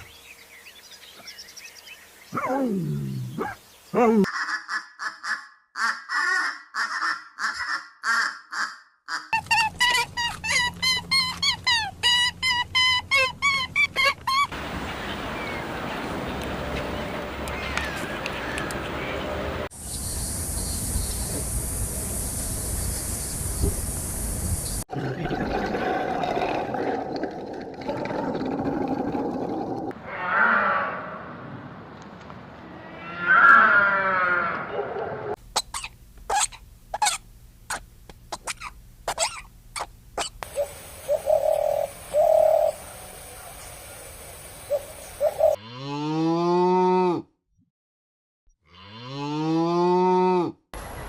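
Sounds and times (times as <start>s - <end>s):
harsh rasping waterfowl calls: 4.3s - 14.5s.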